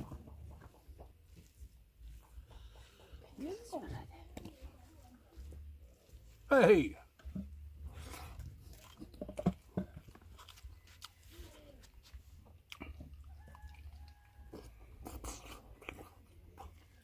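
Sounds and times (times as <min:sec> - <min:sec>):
person chewing food: 0:00.0 - 0:03.3, 0:07.1 - 0:17.0.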